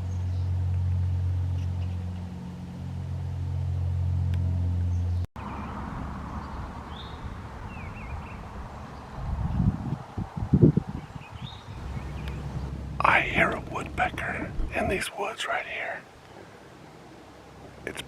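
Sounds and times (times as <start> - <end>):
low steady engine hum: 11.2 - 15.2.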